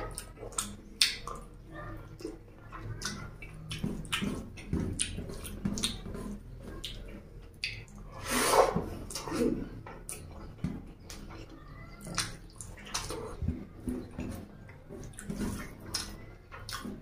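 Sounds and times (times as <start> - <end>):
wet chewing and lip-smacking: 0.0 - 8.2, 8.8 - 17.0.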